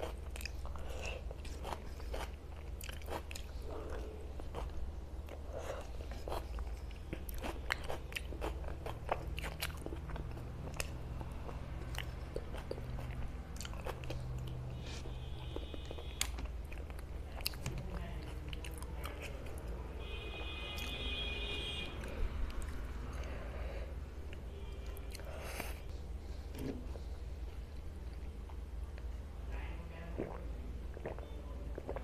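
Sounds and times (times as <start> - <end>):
wet chewing: 0.0 - 19.8, 30.2 - 32.0
low steady hum: 0.0 - 32.0.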